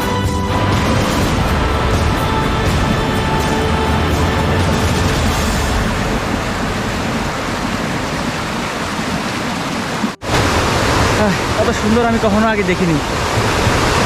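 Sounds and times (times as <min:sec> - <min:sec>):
background music: 0:00.0 - 0:06.4
waterfall roaring: 0:00.0 - 0:14.0.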